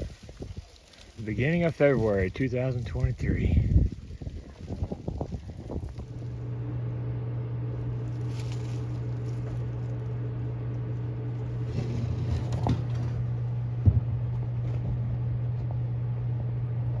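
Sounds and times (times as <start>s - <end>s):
low mechanical hum: 0.0s - 17.0s
faint crackling: 7.7s - 15.1s.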